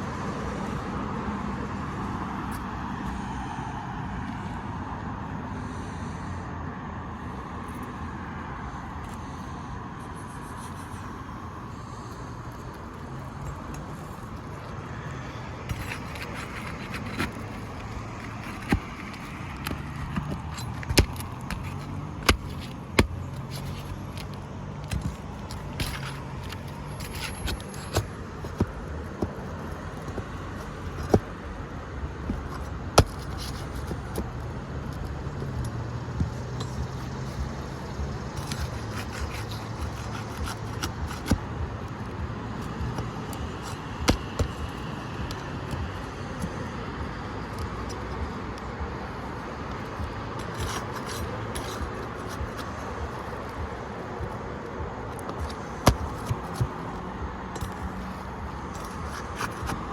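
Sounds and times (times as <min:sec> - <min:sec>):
metal tools scraping shingles: 0:15.3 - 0:31.3, 0:36.2 - 0:41.4, 0:50.4 - 0:53.5.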